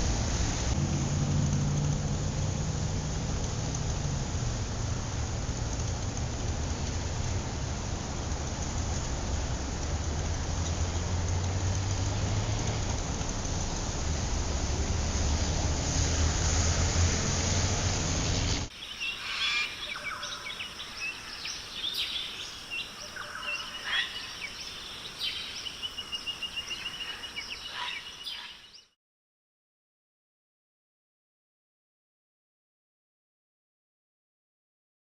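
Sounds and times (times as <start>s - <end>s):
birds chirping: 18.7s - 28.9s
bird trill: 18.8s - 28.9s.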